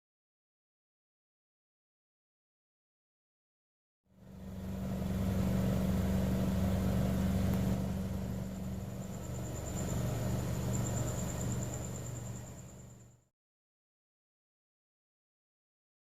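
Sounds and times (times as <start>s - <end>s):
car engine idling: 4.2s - 13.2s.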